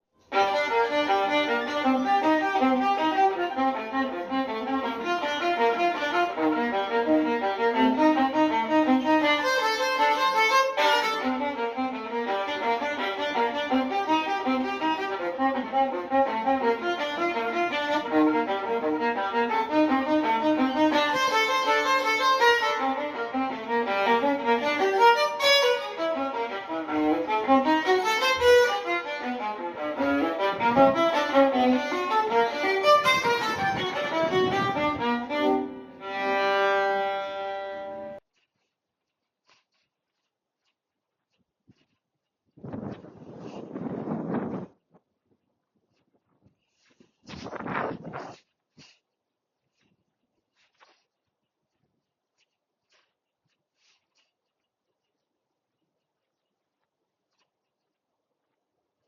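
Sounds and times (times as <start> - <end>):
violin playing quick notes: 0.3 - 38.2.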